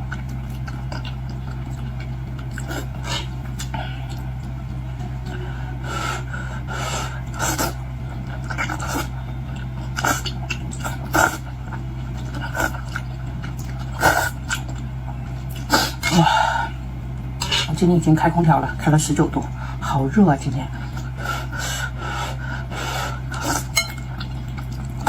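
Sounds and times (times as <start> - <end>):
wet chewing and slurping: 0.0 - 17.8, 20.7 - 25.0
air conditioner humming: 0.0 - 25.0.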